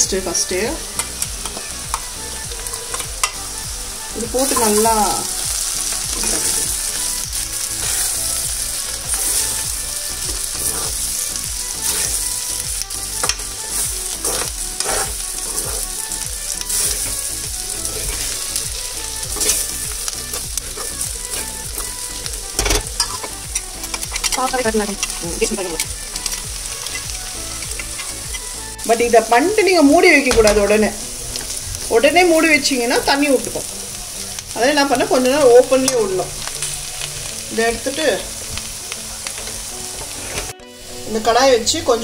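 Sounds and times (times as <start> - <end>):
vegetables sizzling in oil: 0.0 - 42.0
steel spoon scraping a pan: 4.3 - 8.2, 8.8 - 12.4, 13.1 - 29.0, 39.2 - 40.5.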